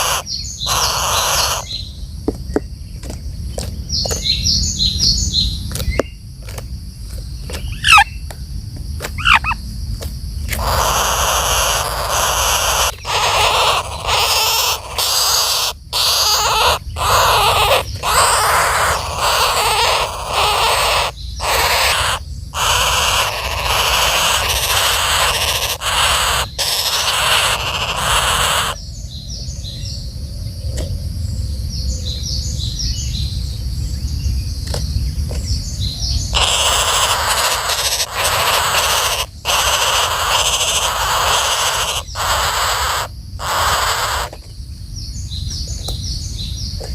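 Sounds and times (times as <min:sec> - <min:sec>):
woodpeckers giving harsh raspy calls: 0:00.0 - 0:01.9, 0:07.5 - 0:08.2, 0:09.0 - 0:09.6, 0:10.4 - 0:28.8, 0:36.3 - 0:44.4.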